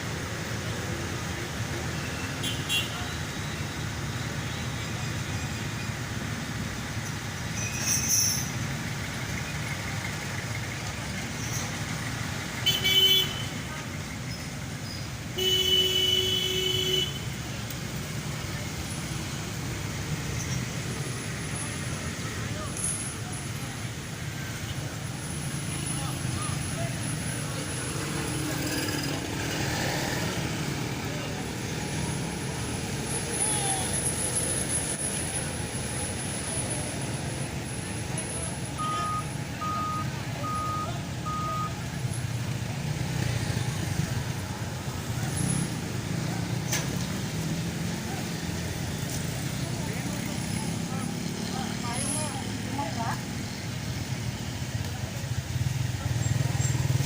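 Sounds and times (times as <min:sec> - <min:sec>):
road traffic rumble: 0:00.0 - 0:57.0
vehicle horn: 0:12.7 - 0:13.6, 0:15.4 - 0:17.3
truck reversing alarm beeping: 0:38.6 - 0:41.9.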